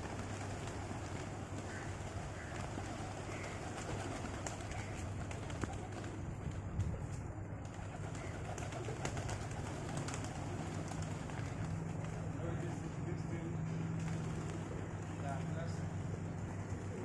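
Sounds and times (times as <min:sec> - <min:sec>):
pigeons cooing: 0:00.0 - 0:06.3, 0:07.8 - 0:12.8.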